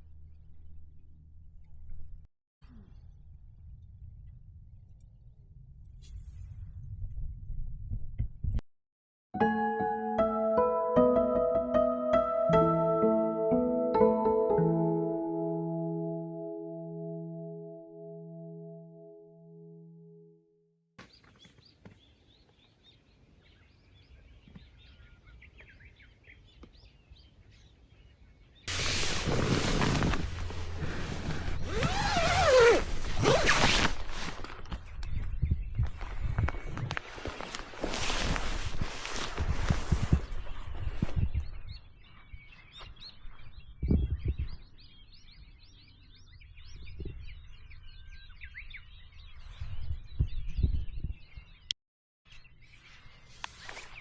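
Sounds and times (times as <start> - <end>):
small birds chirping: 21.0 - 51.7
low rumbles: 28.7 - 35.1.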